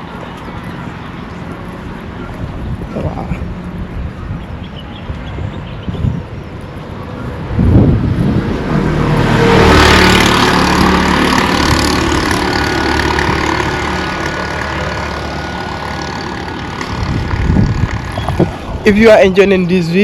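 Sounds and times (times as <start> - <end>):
vehicle passing by: 7.0 - 20.0.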